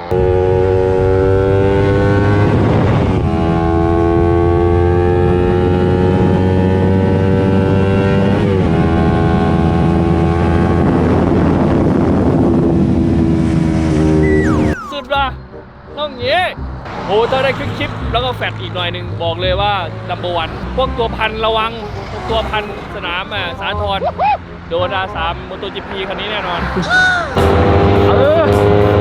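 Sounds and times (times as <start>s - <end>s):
motorcycle engine accelerating: 0.1s - 14.9s.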